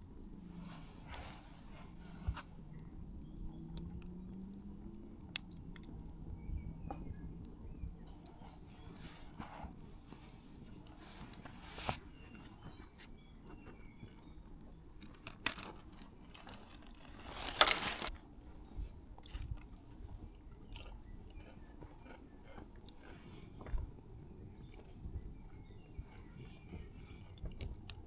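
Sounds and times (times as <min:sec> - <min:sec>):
person chewing crunchy food: 0:16.4 - 0:18.1, 0:20.8 - 0:23.7.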